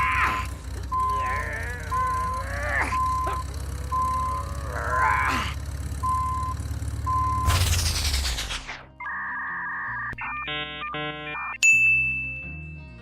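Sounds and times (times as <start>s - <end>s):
truck engine running: 0.0s - 9.2s
reversing beeper beeps: 0.9s - 4.9s, 6.0s - 7.7s
loud rushing noise: 7.4s - 8.8s.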